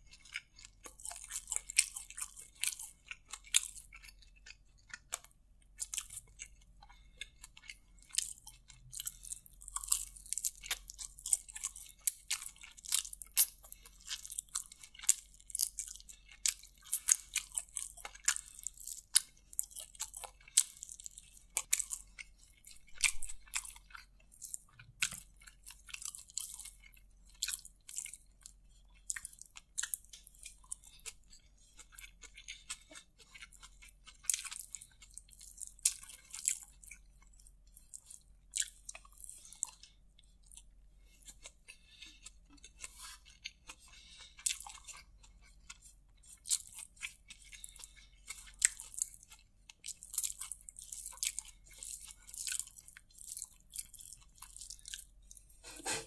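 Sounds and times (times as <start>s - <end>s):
crisp chewing crunches: 0.0s - 56.0s.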